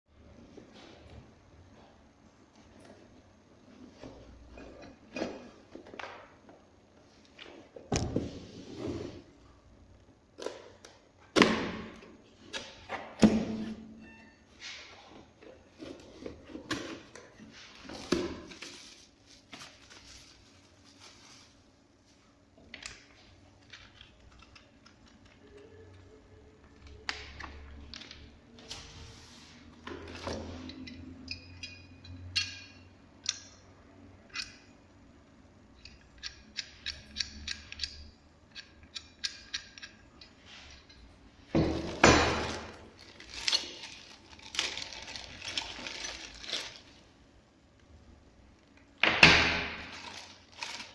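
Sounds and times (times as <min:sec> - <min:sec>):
packaging knocks and rustles: 0:41.6 - 0:47.0, 0:49.5 - 0:50.9.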